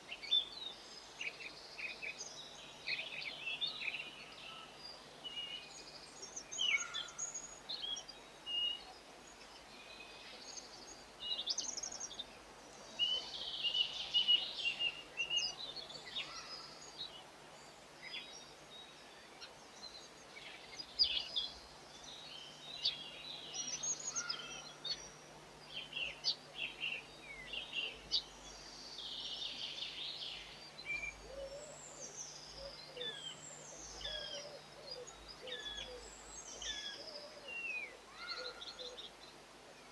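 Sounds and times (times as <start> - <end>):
faint outdoor background: 0.0 - 39.9
songbirds twittering and chirping: 0.0 - 39.9.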